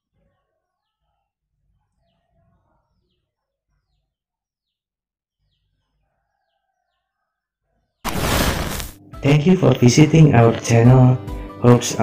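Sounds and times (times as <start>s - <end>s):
faint birds chirping: 0.5s - 8.0s.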